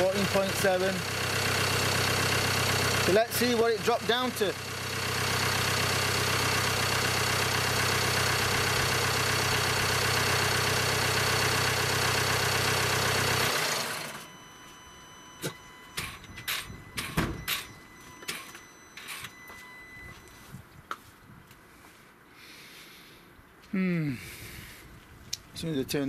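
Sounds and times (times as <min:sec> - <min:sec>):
car engine idling: 0:00.0 - 0:20.4
sharp clicks and knocks: 0:15.4 - 0:19.4.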